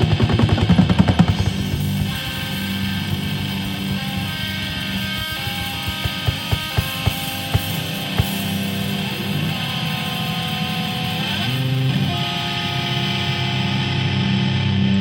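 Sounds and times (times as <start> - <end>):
live band with electric guitar: 0.0 - 15.0.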